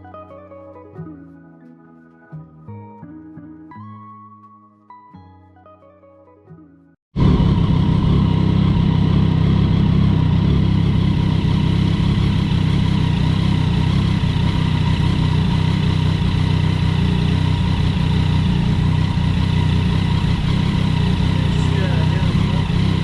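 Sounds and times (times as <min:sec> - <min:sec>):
motorcycle engine idling loudly: 0:07.2 - 0:23.0.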